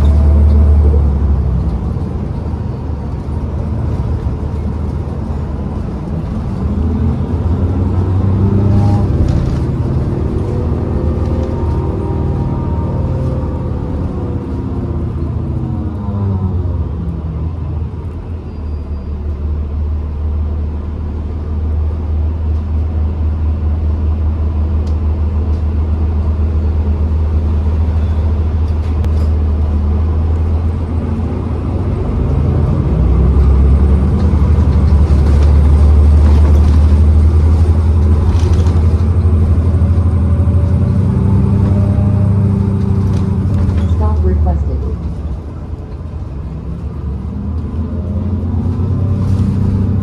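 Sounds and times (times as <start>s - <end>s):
bus engine drone: 0.0s - 50.0s.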